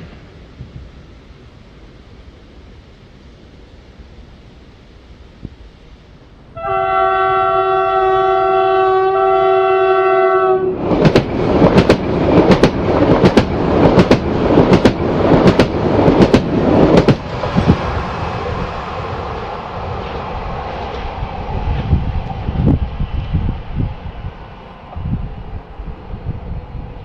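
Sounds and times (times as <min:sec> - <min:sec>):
train horn blast: 0:06.5 - 0:10.8
train wheels clacking over rails: 0:10.8 - 0:22.8.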